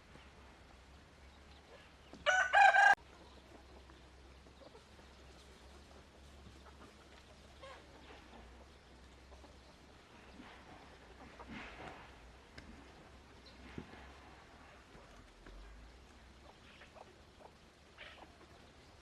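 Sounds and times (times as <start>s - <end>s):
rooster crowing: 2.2s - 3.0s.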